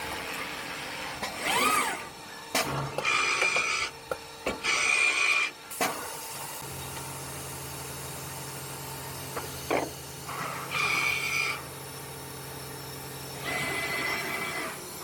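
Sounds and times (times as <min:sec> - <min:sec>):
short mechanical whirs: 0:01.2 - 0:03.9.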